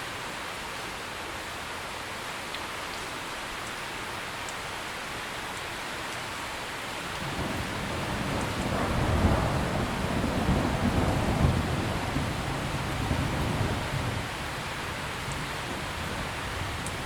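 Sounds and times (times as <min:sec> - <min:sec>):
heavy rain hiss: 0:00.0 - 0:17.0
thunder rumbling: 0:07.2 - 0:17.0.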